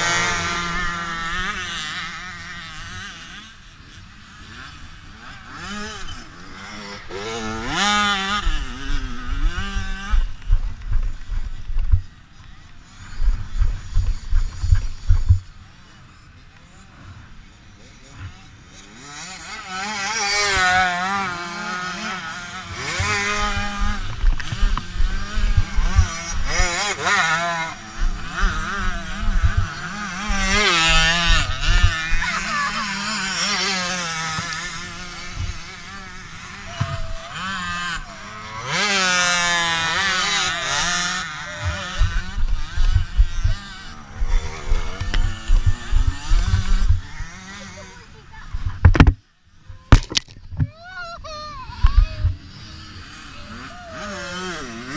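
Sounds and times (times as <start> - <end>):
dirt bike engines revving: 0.0 - 54.9.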